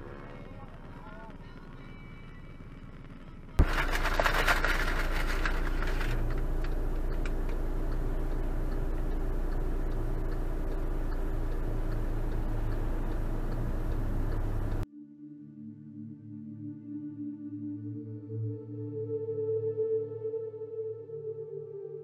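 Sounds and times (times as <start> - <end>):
vehicle engine humming: 0.0 - 14.8
faint ticking: 6.2 - 14.8.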